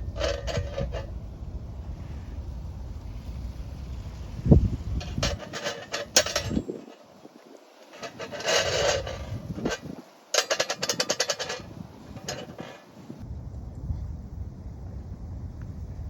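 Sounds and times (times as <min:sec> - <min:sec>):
scraping rasping strokes: 0:00.0 - 0:01.1, 0:04.9 - 0:13.2.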